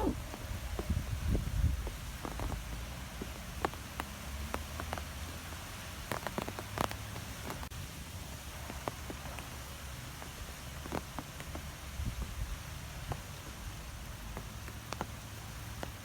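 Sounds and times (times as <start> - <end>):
wind rumbling on microphone: 0.0 - 3.8, 7.4 - 14.2
wind blowing through trees: 0.0 - 16.0.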